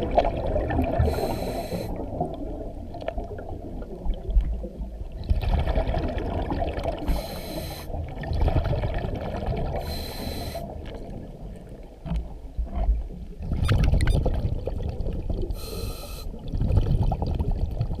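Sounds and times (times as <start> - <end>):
regulator hissing inhalations: 1.0 - 2.0, 7.1 - 7.9, 9.8 - 10.7, 15.6 - 16.4.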